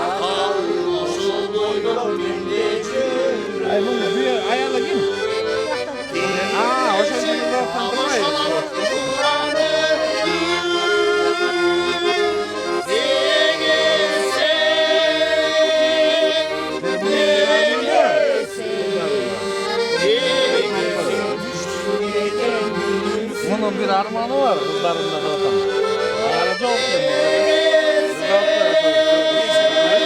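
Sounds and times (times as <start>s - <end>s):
accordion playing folk chords: 0.0s - 30.0s.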